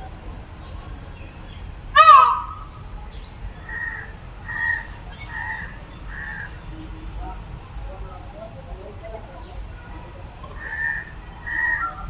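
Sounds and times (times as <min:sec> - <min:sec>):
crows cawing: 0:02.0 - 0:02.8.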